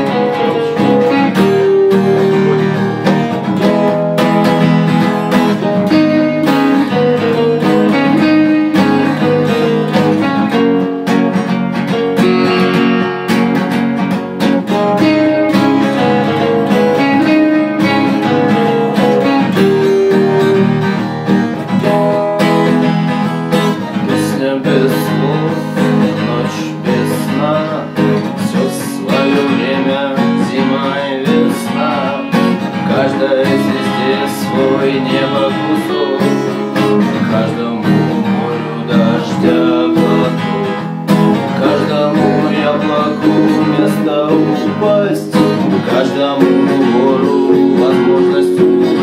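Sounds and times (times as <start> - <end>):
acoustic guitar strumming: 0.0 - 49.0.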